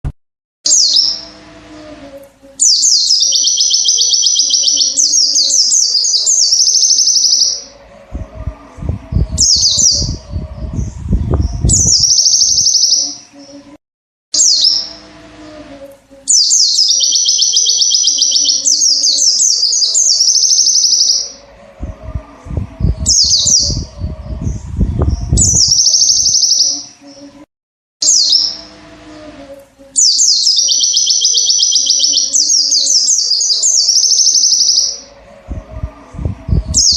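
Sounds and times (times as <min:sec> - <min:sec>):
bird singing high trills: 0:00.7 - 0:01.4, 0:02.6 - 0:07.8, 0:11.4 - 0:13.3, 0:14.4 - 0:15.1, 0:16.3 - 0:21.4, 0:25.1 - 0:27.0, 0:28.0 - 0:28.8, 0:30.0 - 0:35.1
low rumbling noise: 0:07.2 - 0:12.6, 0:21.2 - 0:26.2, 0:34.9 - 0:36.9.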